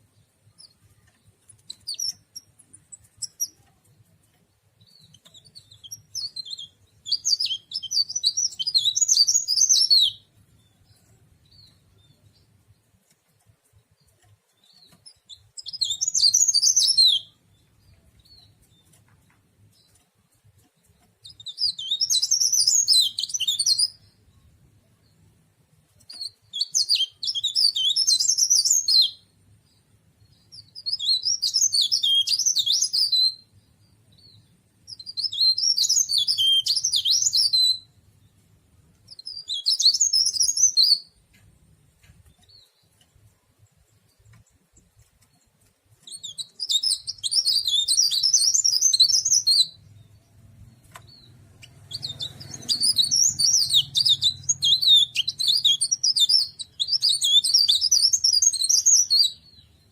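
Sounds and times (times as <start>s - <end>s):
songbird warbling: 51.0s - 59.5s.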